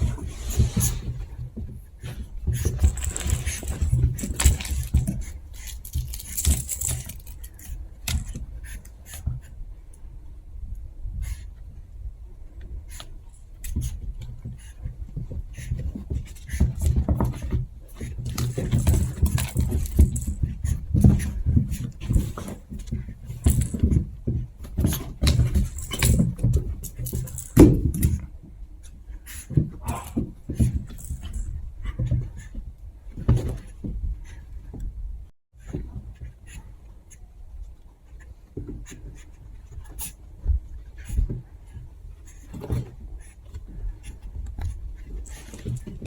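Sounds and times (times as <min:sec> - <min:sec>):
claws scratching on a surface: 0:00.0 - 0:01.4
puppies scuffling: 0:00.0 - 0:09.3, 0:13.6 - 0:34.6, 0:40.9 - 0:46.0.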